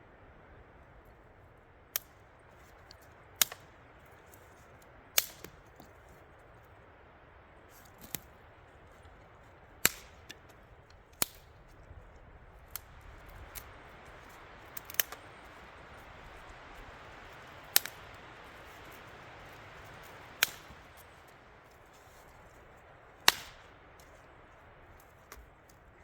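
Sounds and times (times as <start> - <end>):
campfire crackling: 0.0 - 26.0
steady fire hiss: 0.8 - 26.0
sharp fire pops: 9.8 - 10.4, 14.7 - 15.4, 17.7 - 18.1, 20.0 - 21.0, 23.2 - 23.8.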